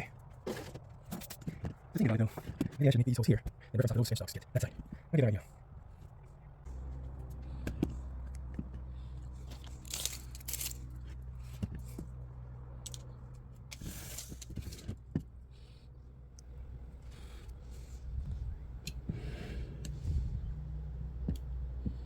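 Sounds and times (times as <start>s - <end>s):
scraping and rustling of handling: 4.6s - 15.3s
low machine hum: 5.0s - 22.0s.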